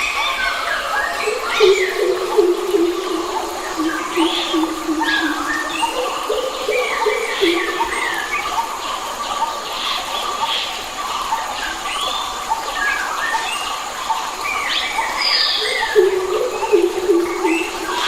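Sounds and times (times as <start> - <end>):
birds singing whistled notes: 0.0 - 8.7, 14.4 - 18.0
background hiss: 0.0 - 18.0.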